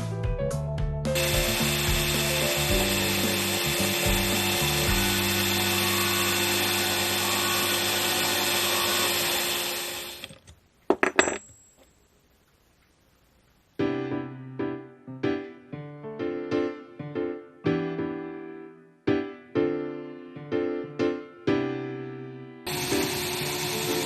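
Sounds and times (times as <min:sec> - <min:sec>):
electric drill motor whine: 0:01.2 - 0:10.3, 0:22.7 - 0:24.0.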